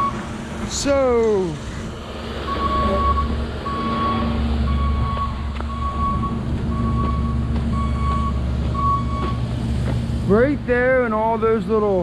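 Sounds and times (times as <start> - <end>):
diesel engine running: 0.0 - 12.0
backup alarm beeping: 2.5 - 9.5.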